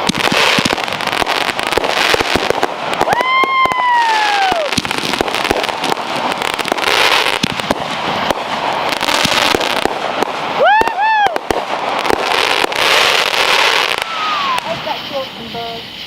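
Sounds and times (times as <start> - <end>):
fireworks banging and crackling: 0.0 - 16.0
whistling firework: 0.0 - 16.0.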